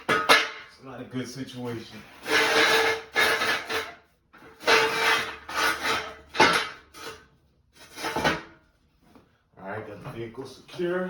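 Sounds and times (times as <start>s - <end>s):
metal jack stands scraping and clanking: 2.0s - 8.6s.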